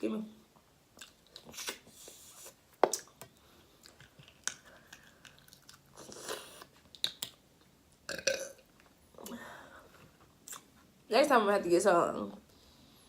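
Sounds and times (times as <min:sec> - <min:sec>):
chewing and crunching: 0:03.7 - 0:07.4.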